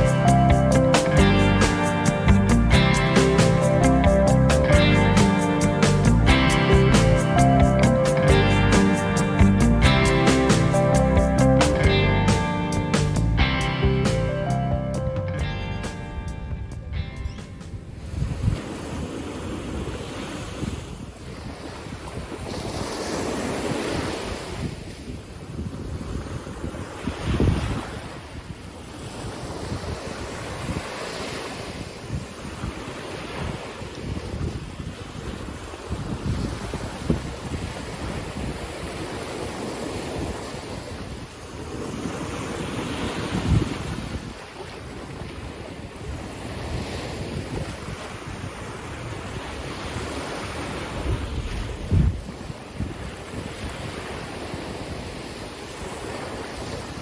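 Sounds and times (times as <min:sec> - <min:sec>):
ocean surf washing in: 0:00.0 - 0:16.4, 0:29.2 - 0:57.0
wind buffeting microphone: 0:15.9 - 0:57.0.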